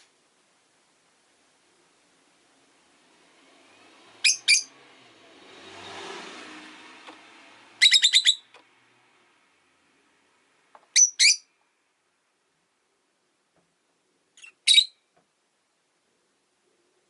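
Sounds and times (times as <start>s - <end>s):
lovebirds chirping: 4.2s - 4.8s, 7.8s - 8.6s, 10.8s - 11.6s, 14.3s - 15.2s.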